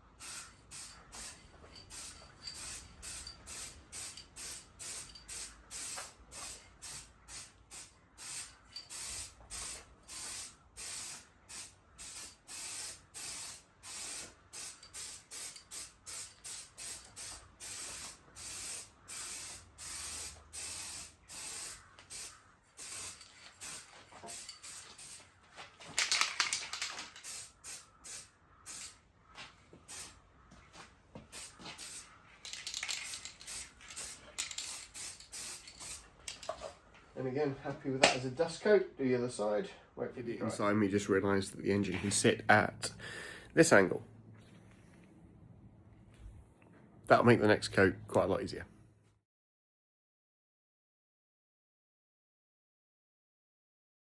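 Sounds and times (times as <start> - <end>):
aerosol spray can hissing: 0.2 - 25.2, 26.0 - 29.0, 31.3 - 36.1.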